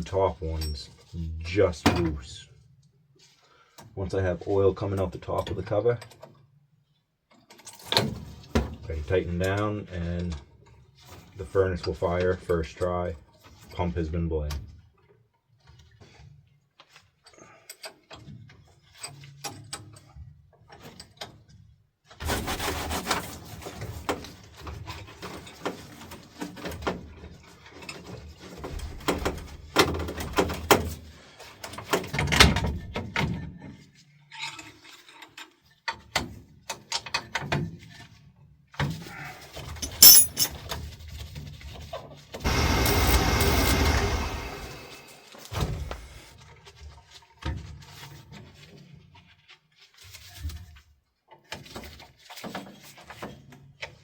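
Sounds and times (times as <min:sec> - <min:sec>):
hand tools clanking on metal: 0:39.8 - 0:40.6
loud steady noise: 0:42.5 - 0:45.2.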